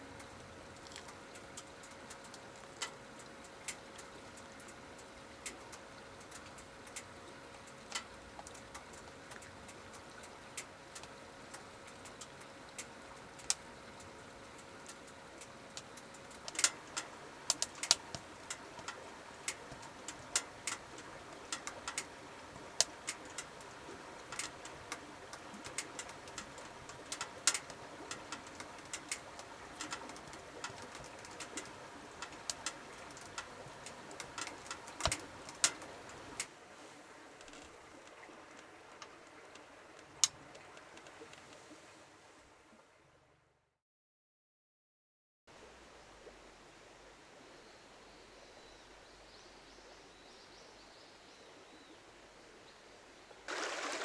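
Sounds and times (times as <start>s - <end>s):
wood fire crackling and popping: 14.8s - 36.4s.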